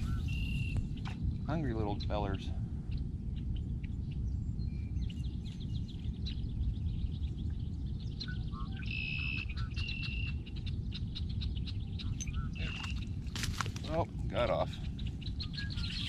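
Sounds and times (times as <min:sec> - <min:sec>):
whistled bird notes: 0:00.0 - 0:01.1, 0:04.2 - 0:13.6, 0:14.6 - 0:16.0
birds chirping: 0:00.0 - 0:16.0
steady low rumble: 0:00.0 - 0:16.0.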